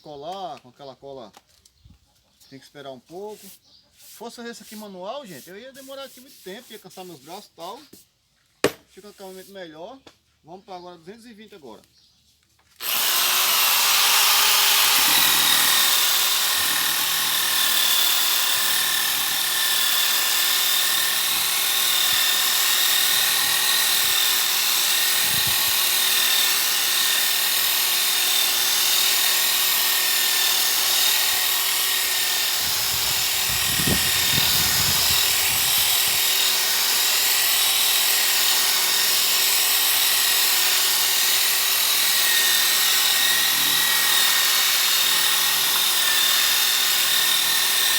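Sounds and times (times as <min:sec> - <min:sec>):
sanding disc on wood: 0:03.2 - 0:08.0, 0:30.1 - 0:39.2.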